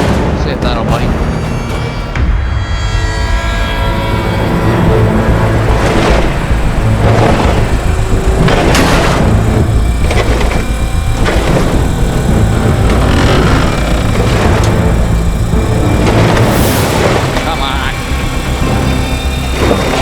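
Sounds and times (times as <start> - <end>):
diesel truck engine under load: 4.4 - 20.0.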